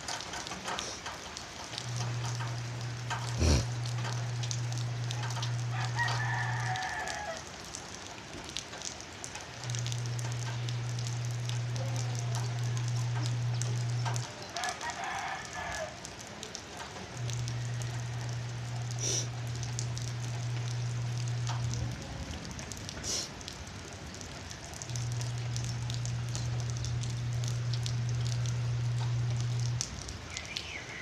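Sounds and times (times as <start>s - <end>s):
light rain falling: 0.0s - 31.0s
steady low hum: 1.7s - 6.6s, 9.6s - 14.3s, 17.1s - 22.9s, 24.1s - 30.3s.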